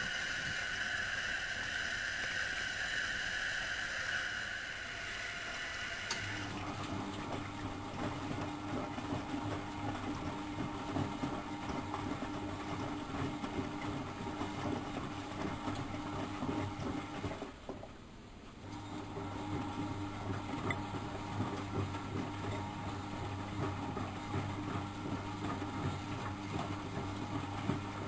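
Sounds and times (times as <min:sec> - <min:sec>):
hissing water: 0:00.0 - 0:06.6
washing machine drum churning: 0:00.0 - 0:18.0, 0:18.7 - 0:28.0.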